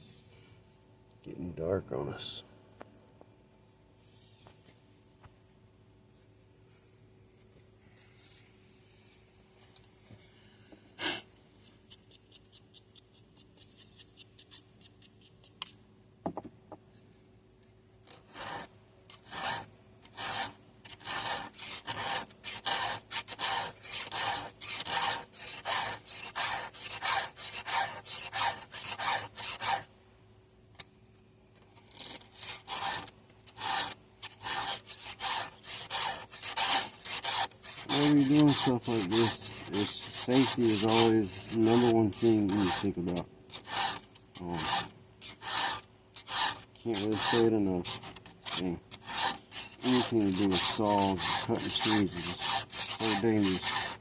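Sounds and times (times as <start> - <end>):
crickets chirping: 0.0 - 54.0
file rasping on chainsaw chain: 18.1 - 29.9, 31.7 - 54.0.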